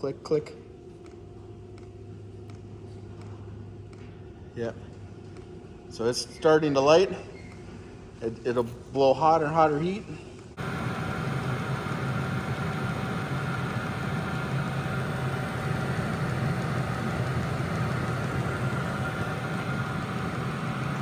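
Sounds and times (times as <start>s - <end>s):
heater blower hum: 8.7s - 21.0s
whining tones: 10.6s - 21.0s.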